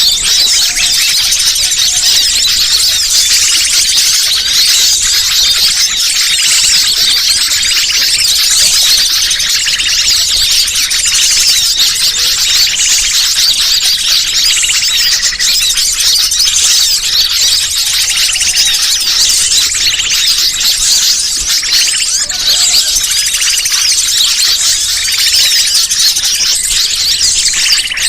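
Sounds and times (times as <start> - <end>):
many small birds chirping: 0.0 - 28.0.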